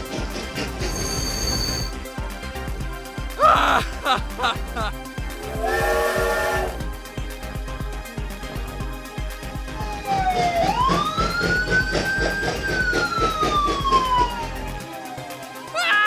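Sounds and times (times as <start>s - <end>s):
background music with steady beat: 0.0s - 16.0s
police siren wail: 10.1s - 11.8s, 12.4s - 14.6s.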